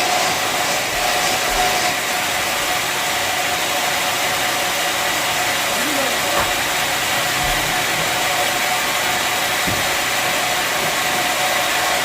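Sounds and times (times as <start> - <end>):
sawmill machinery whirring: 0.0 - 12.0.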